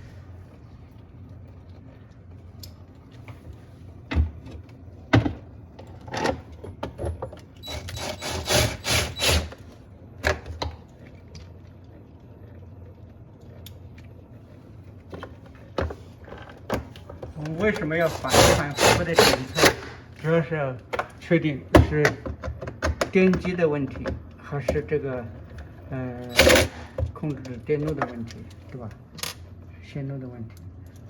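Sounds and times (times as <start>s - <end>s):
plastic parts knocking and clicking: 20.9s - 24.8s.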